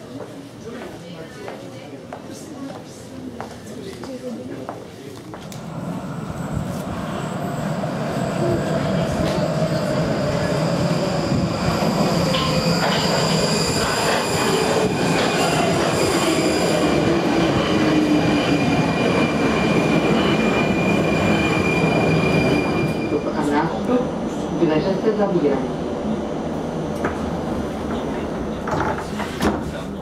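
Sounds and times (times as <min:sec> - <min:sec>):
wheels squealing on rails: 0:06.0 - 0:17.2, 0:18.2 - 0:23.4.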